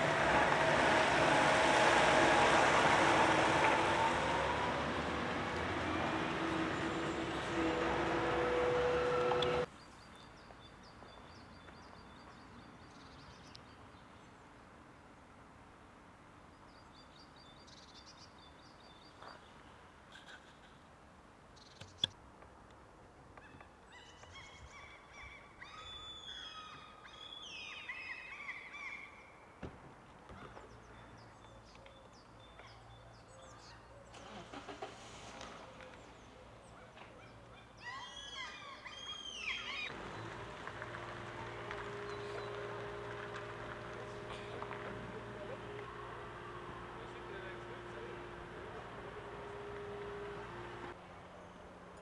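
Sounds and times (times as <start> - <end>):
birds calling: 23.4 - 29.5, 35.4 - 51.0.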